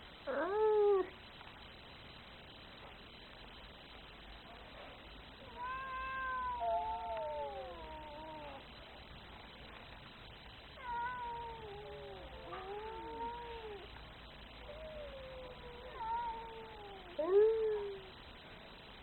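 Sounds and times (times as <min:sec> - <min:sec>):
cat yowling: 0:05.5 - 0:08.6, 0:10.8 - 0:13.9, 0:14.6 - 0:18.1.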